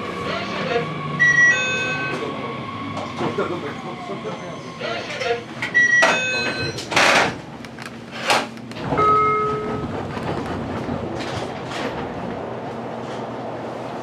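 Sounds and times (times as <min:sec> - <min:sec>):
train equipment hum: 0:06.7 - 0:14.0.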